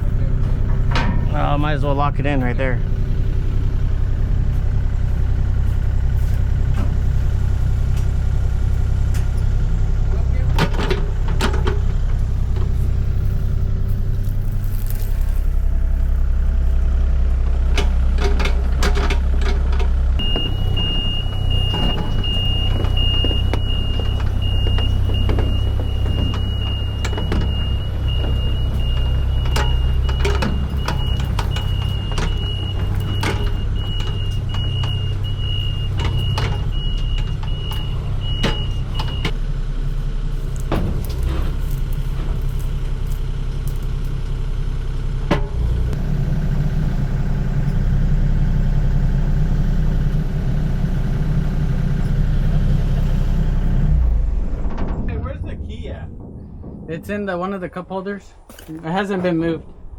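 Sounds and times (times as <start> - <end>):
vehicle engine rumbling: 0.0 - 59.9
electronic warning tone: 20.2 - 39.3.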